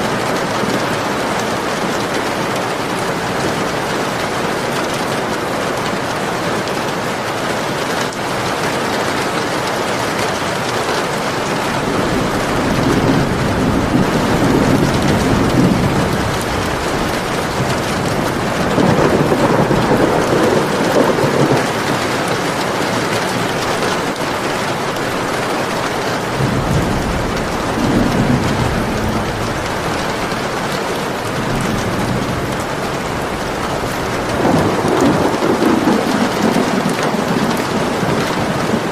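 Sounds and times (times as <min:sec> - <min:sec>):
heavy rain falling: 0:00.0 - 0:38.9
distant thunder rolling: 0:11.4 - 0:38.9.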